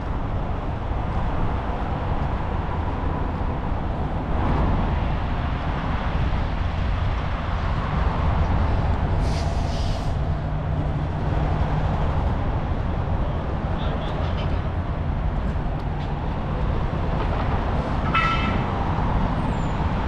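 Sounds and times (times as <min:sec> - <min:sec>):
short hiss: 0:09.2 - 0:10.2.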